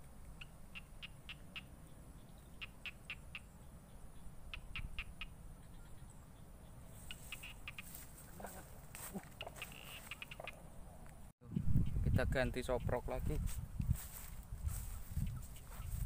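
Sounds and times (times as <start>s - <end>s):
bird chirping: 0.4s - 7.9s, 9.4s - 10.9s.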